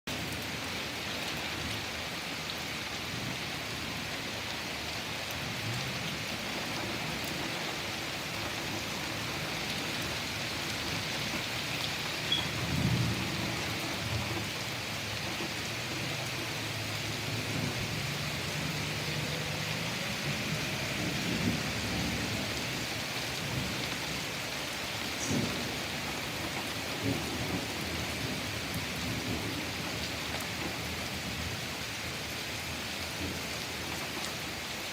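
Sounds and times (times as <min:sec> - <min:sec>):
steady rain falling: 0:00.1 - 0:34.9
thunder rumbling: 0:05.6 - 0:31.6.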